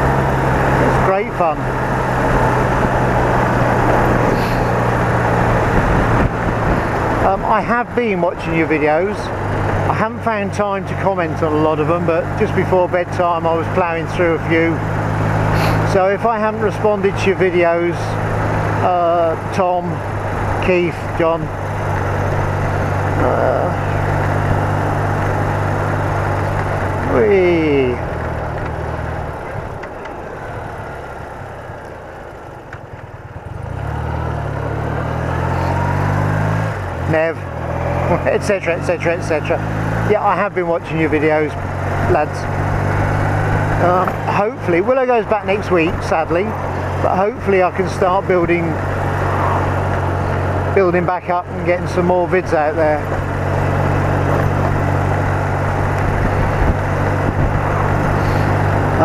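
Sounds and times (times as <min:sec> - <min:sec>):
motorcycle engine running: 0:00.0 - 0:59.0
wind noise: 0:01.7 - 0:07.6, 0:53.1 - 0:59.0.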